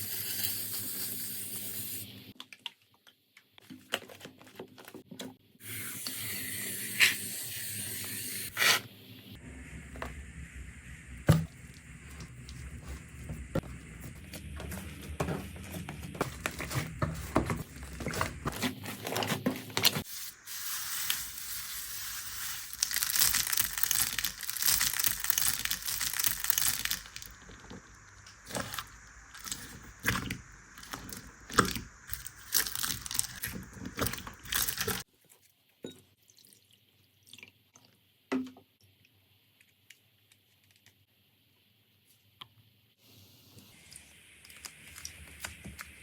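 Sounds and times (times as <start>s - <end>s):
slime crackling and squishing: 22.7s - 27.5s, 28.4s - 35.0s.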